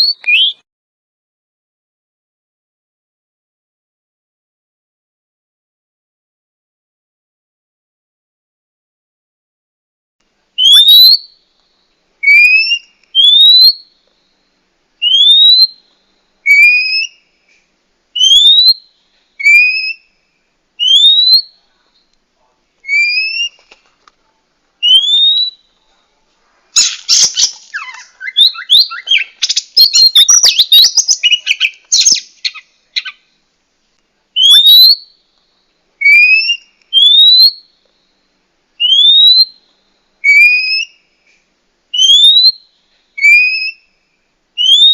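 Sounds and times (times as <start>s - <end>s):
bird whistling calls: 0.0s - 0.6s, 10.6s - 11.3s, 12.2s - 13.8s, 15.0s - 15.8s, 16.4s - 17.2s, 18.2s - 20.1s, 20.8s - 21.6s, 22.8s - 23.6s, 24.8s - 25.7s, 26.8s - 33.2s, 34.4s - 35.1s, 36.0s - 37.7s, 38.8s - 39.6s, 40.2s - 41.0s, 41.9s - 43.9s, 44.6s - 44.9s
bird scratchy chattering: 26.8s - 33.2s.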